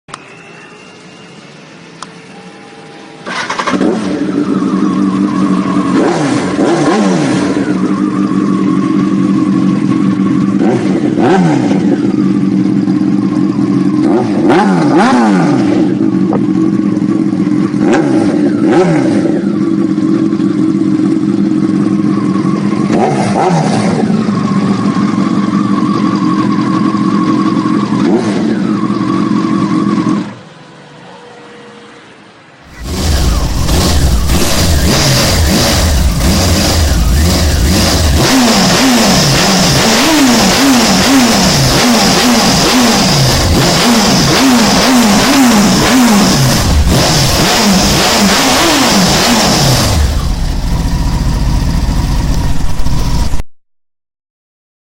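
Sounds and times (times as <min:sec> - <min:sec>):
motorcycle engine revving: 0:03.2 - 0:30.8, 0:32.6 - 0:53.5
motorcycle engine idling: 0:03.3 - 0:14.6, 0:15.7 - 0:30.5, 0:32.6 - 0:43.6, 0:49.8 - 0:53.4.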